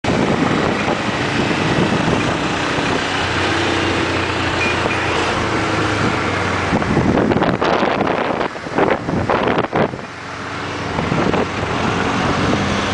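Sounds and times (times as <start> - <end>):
wind buffeting microphone: 0.0 - 12.9
wind noise: 0.0 - 12.9
motorcycle engine: 0.1 - 12.9.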